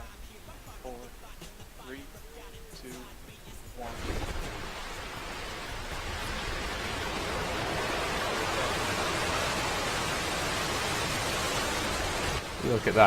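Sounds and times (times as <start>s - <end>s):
rocket engines roaring: 3.8s - 13.0s.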